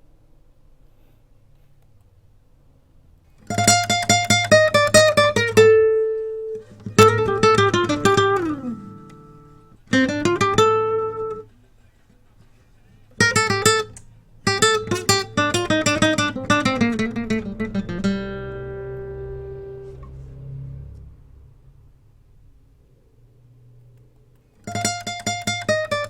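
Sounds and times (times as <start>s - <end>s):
plucked guitar notes: 3.4s - 11.5s, 13.2s - 21.2s, 24.6s - 26.0s.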